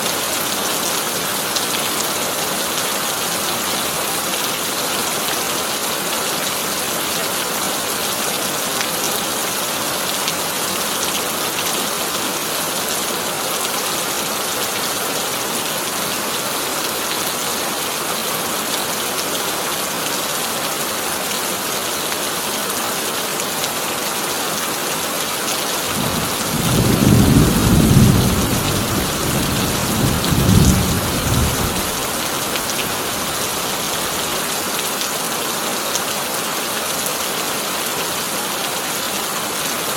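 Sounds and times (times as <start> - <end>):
heavy rain on a tin roof: 0.0 - 39.9
thunder rumbling: 26.0 - 32.2.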